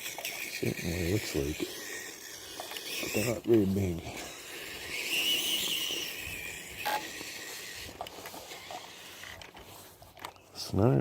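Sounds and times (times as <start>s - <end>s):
toy truck electric motor whining: 0.0s - 10.5s.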